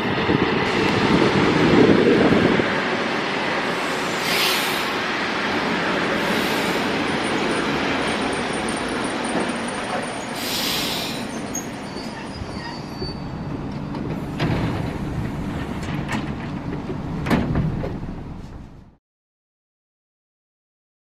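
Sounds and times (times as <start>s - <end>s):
train wheels rumbling on rail: 0.0s - 19.0s
wheel squeal: 7.1s - 14.1s
clicks over rail joints: 13.7s - 18.7s.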